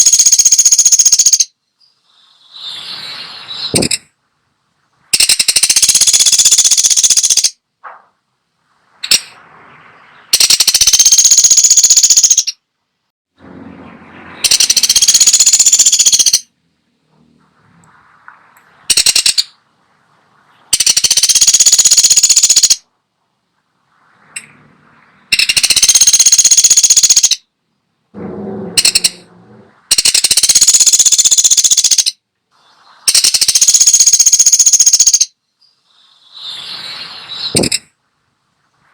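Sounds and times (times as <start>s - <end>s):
woodpecker rattling calls: 0.0s - 1.6s, 3.6s - 4.1s, 5.1s - 7.6s, 10.3s - 12.6s, 14.4s - 16.5s, 18.9s - 19.6s, 20.7s - 22.8s, 25.3s - 27.5s, 28.8s - 29.2s, 29.9s - 32.2s, 33.1s - 35.4s, 37.4s - 37.9s.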